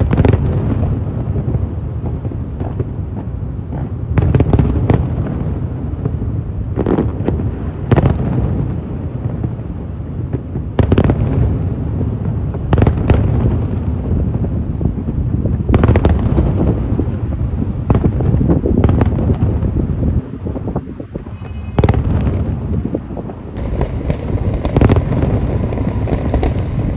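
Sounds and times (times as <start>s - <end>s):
low rumble of bursts: 13.5s - 26.9s
firework shells bursting: 23.6s - 26.9s.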